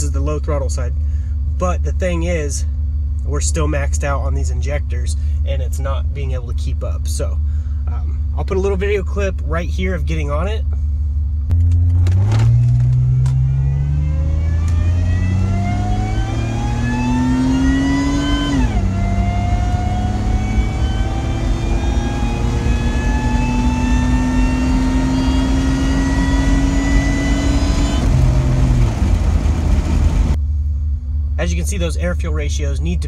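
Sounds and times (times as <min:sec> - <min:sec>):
car engine accelerating hard: 0:11.6 - 0:30.4.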